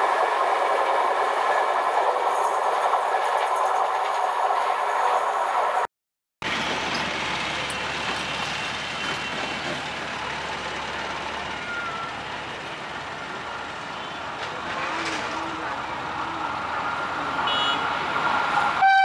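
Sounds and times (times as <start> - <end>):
train rumble and hiss: 6.5 - 19.0.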